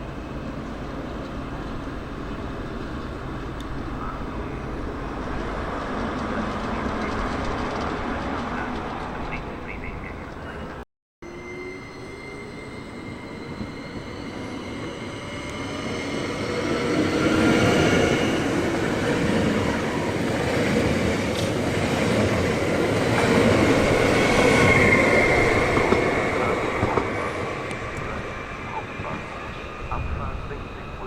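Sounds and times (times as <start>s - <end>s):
train passing: 0.0s - 31.0s
wheels squealing on rails: 11.2s - 20.4s, 21.2s - 31.0s.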